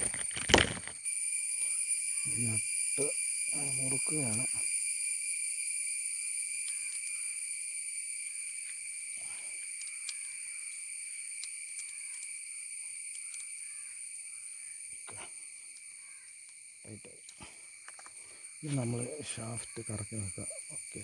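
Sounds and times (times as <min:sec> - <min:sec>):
insect chirring: 0:00.0 - 0:21.0.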